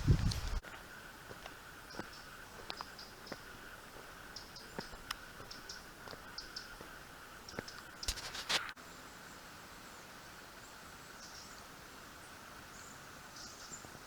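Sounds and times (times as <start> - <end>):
small birds chirping: 0.0 - 9.4, 10.6 - 14.0
insect-like hum: 0.0 - 14.0
clicks and rustles: 7.6 - 8.8.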